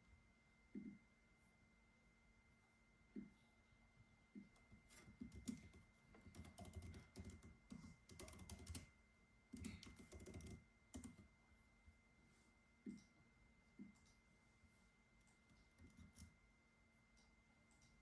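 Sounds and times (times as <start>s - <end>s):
faint keyboard typing: 4.4s - 8.9s, 9.5s - 11.4s, 15.2s - 16.4s.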